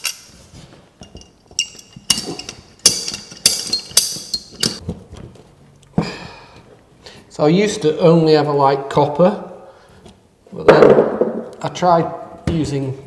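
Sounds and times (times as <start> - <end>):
metal fittings clinking: 0.0 - 4.8.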